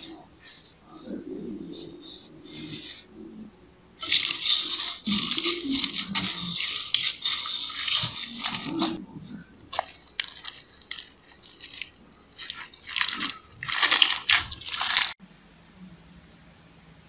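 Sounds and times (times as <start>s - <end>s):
slime crackling and popping: 9.7s - 15.2s.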